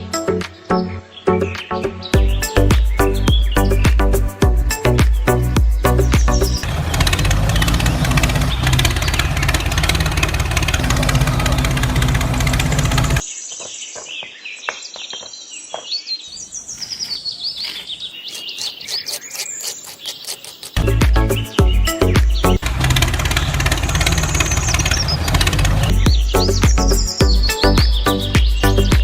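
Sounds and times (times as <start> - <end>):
birds chirping and calling: 0.0 - 29.0
loud dense noise: 6.6 - 13.2.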